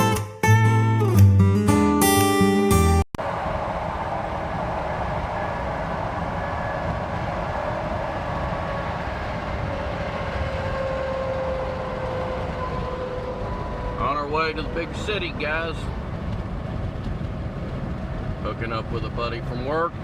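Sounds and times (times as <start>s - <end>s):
guitar music: 0.0s - 3.0s
faint hum dropping in pitch: 3.2s - 20.0s
vehicle engine and road noise: 3.2s - 20.0s.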